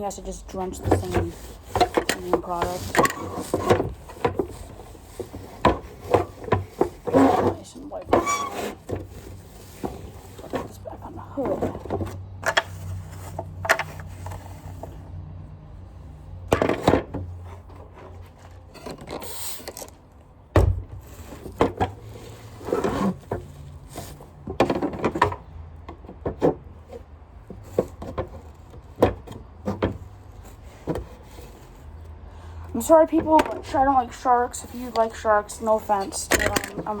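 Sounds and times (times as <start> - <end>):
plastic parts knocking and clicking: 0.7 - 14.4, 24.4 - 30.1, 36.1 - 37.0.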